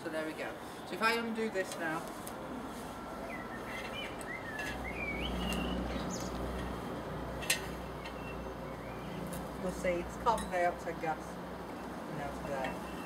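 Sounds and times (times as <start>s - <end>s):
bird chirping and warbling: 3.2s - 6.6s, 7.7s - 9.4s.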